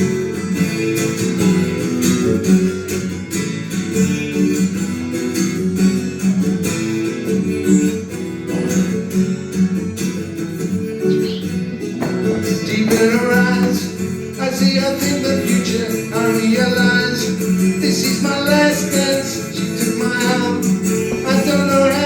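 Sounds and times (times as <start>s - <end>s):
acoustic guitar strumming: 0.0s - 22.0s
person singing pop song: 11.1s - 22.0s.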